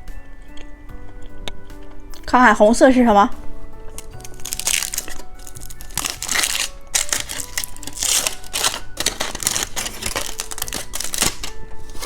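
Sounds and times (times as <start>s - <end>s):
soft background music: 0.0s - 12.0s
plastic wrapper crinkling: 4.0s - 12.0s.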